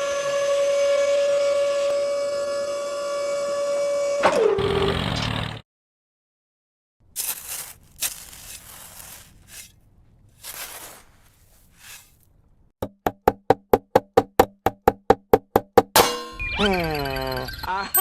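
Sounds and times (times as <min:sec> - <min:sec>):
fast hollow ringing knocks: 0:12.8 - 0:16.4.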